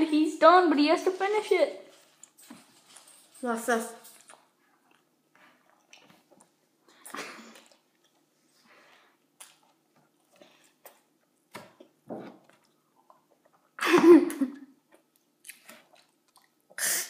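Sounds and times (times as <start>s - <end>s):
person chewing food: 4.2s - 13.8s, 14.8s - 16.8s
person coughing: 13.8s - 14.5s.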